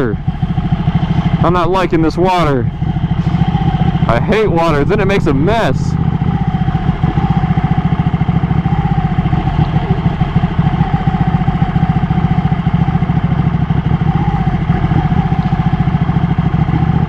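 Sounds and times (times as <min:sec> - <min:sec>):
motorcycle engine throbbing: 0:00.0 - 0:17.0.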